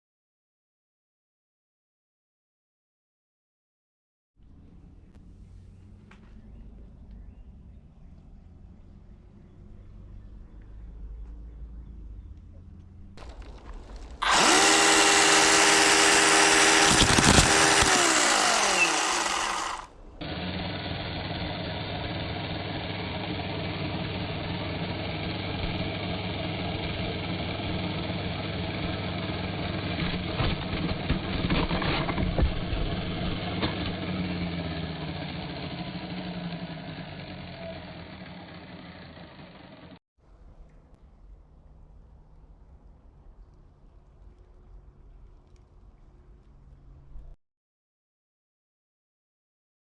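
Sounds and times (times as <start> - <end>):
chainsaw running: 13.2 - 40.0.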